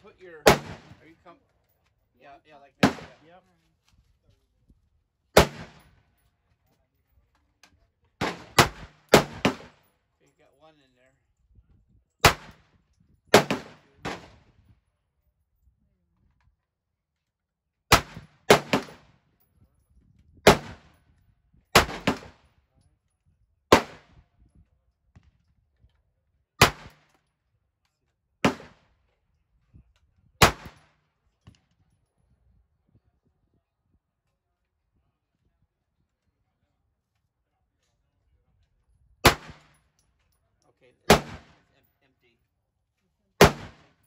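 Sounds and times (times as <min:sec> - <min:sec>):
gunshots: 0:00.4 - 0:01.1, 0:02.8 - 0:03.2, 0:05.4 - 0:05.9, 0:08.2 - 0:09.8, 0:12.2 - 0:12.7, 0:13.3 - 0:14.4, 0:17.9 - 0:19.1, 0:20.4 - 0:21.0, 0:21.8 - 0:22.4, 0:23.7 - 0:24.1, 0:26.6 - 0:27.1, 0:28.4 - 0:28.9, 0:30.4 - 0:30.9, 0:39.2 - 0:39.7, 0:41.1 - 0:41.7, 0:43.4 - 0:44.0.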